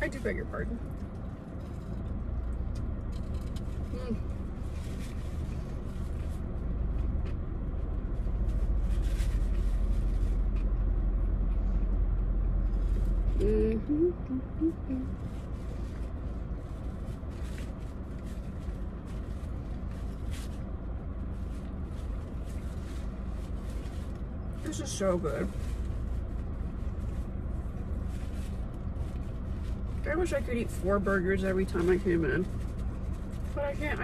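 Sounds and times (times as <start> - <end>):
idling car rumble inside cabin: 0.0 - 34.0
person humming with mouth full: 13.4 - 15.1.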